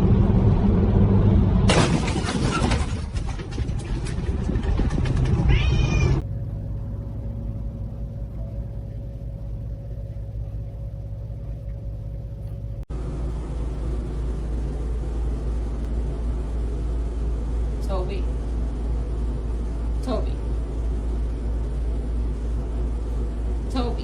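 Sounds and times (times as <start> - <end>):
steady low hum: 0.0 - 24.0
cat meowing: 5.5 - 6.2.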